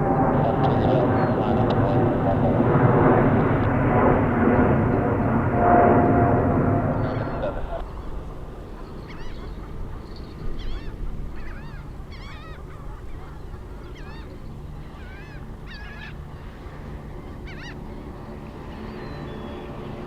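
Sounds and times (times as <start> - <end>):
low rumble: 0.0 - 8.6
bird calling: 6.9 - 20.0.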